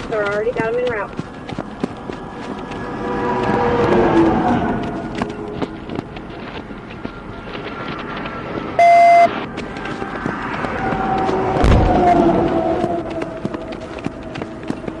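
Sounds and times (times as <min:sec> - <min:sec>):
vehicle and road noise: 0:00.0 - 0:15.0
electronic beep: 0:08.8 - 0:09.3.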